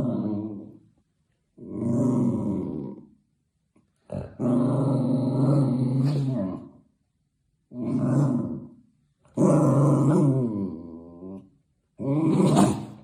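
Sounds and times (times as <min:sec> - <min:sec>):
dog growling: 0:00.0 - 0:00.8, 0:01.6 - 0:03.1, 0:04.0 - 0:06.8, 0:07.7 - 0:13.0.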